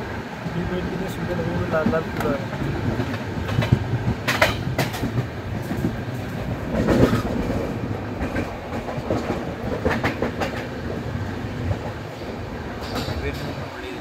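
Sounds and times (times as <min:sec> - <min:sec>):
train wheels rumbling on track: 0:00.0 - 0:14.0
wheels clicking over rail joints: 0:01.2 - 0:14.0.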